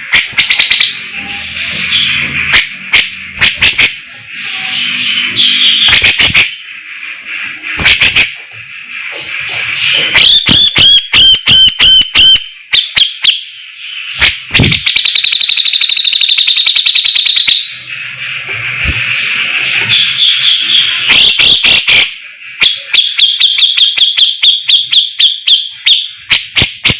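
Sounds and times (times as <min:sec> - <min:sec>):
bird singing: 0:00.0 - 0:26.9.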